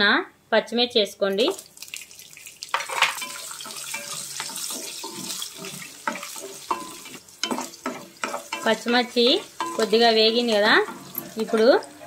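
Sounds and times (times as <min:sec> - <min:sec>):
chillies sizzling in hot oil: 0:01.4 - 0:12.0
wooden spatula scraping pot: 0:02.8 - 0:12.0.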